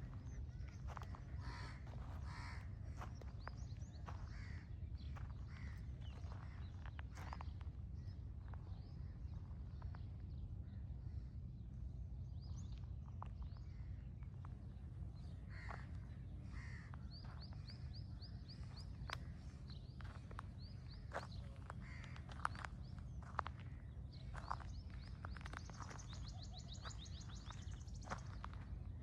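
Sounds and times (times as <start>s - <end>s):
crows cawing: 0.9s - 7.3s, 15.4s - 17.8s, 21.2s - 24.6s.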